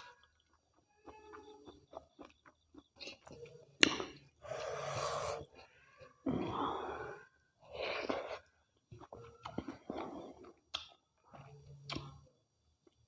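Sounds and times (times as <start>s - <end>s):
breathy mouth eating sounds: 0.0s - 12.2s
faint mouth smacks: 11.8s - 12.2s.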